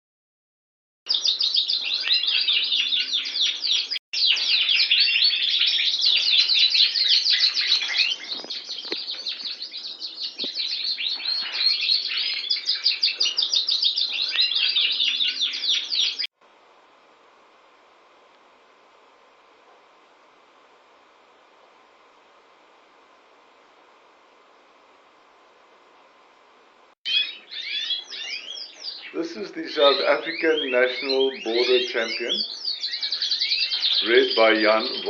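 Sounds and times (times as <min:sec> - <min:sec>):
canary singing trills: 0:01.1 - 0:16.3, 0:27.1 - 0:35.0.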